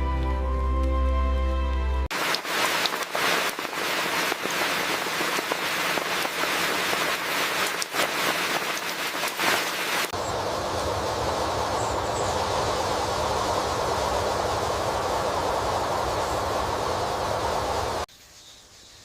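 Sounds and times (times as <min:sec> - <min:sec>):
soft music: 0:00.0 - 0:02.1
heavy rain pattering: 0:02.1 - 0:18.1
steady rushing noise: 0:02.1 - 0:18.1.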